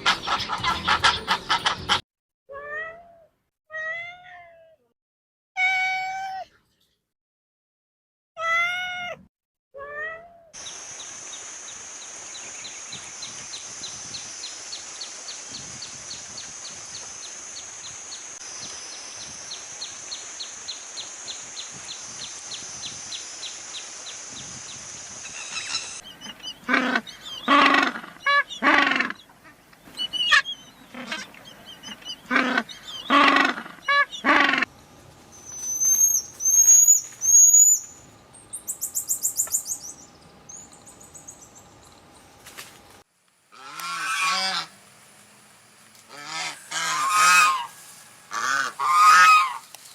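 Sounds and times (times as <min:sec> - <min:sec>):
loud repeated animal calls: 0:32.3 - 0:34.7, 0:43.6 - 0:44.7, 0:46.1 - 0:49.6.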